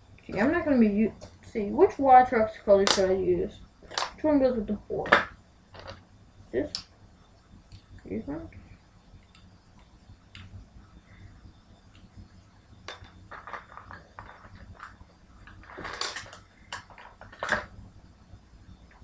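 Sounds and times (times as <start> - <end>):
small parts clicking and clattering: 5.0 - 6.0, 12.9 - 17.8.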